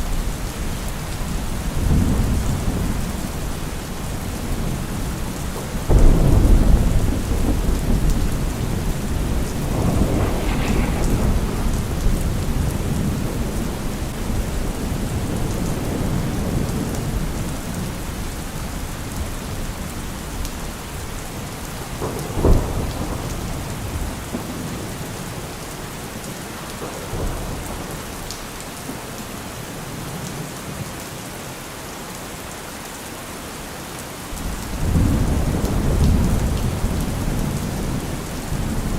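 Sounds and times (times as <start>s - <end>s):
heavy rain: 0.0s - 38.9s
rolling thunder: 1.2s - 18.0s, 21.8s - 25.6s, 34.4s - 38.9s
sharp thunder clap: 5.9s - 16.2s.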